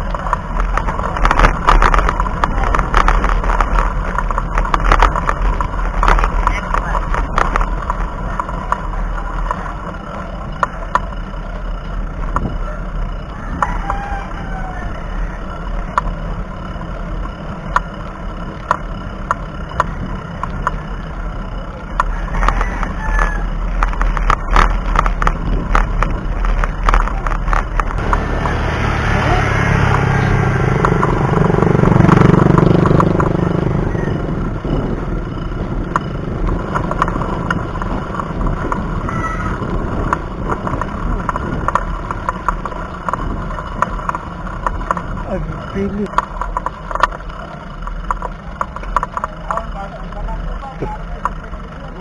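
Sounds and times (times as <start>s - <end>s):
bicycle road rumble: 0.0s - 52.0s
wind noise: 22.0s - 47.0s
vehicle engine passing: 24.8s - 46.2s
sharp clicks: 29.6s - 33.6s.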